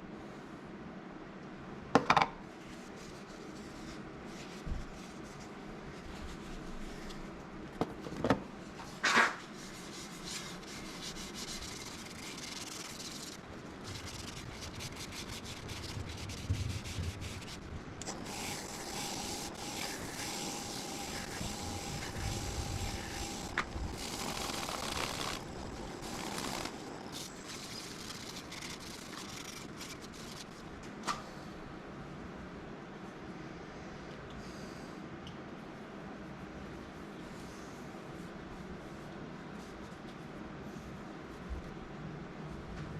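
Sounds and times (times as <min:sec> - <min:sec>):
sanding wood on a lathe: 0:09.6 - 0:30.5.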